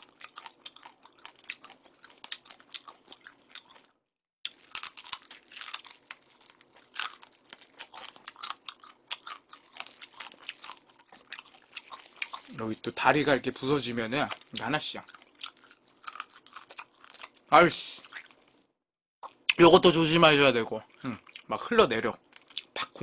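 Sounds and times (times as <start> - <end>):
crab shell crunching in mouth: 0.0 - 12.9, 14.2 - 18.5.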